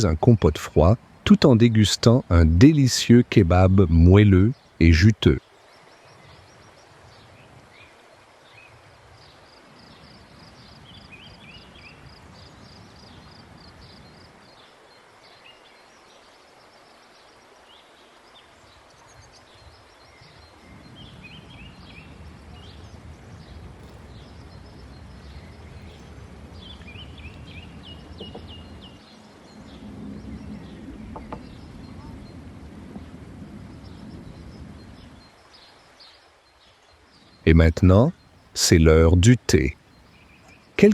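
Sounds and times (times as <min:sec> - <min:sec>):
small birds chirping: 0:00.0 - 0:40.9
low outdoor rumble: 0:21.4 - 0:35.3.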